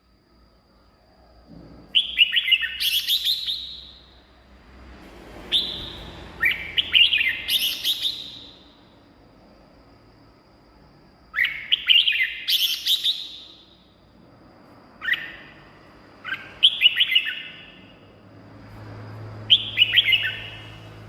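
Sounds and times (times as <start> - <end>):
bird singing warbled notes: 5.5 - 8.6.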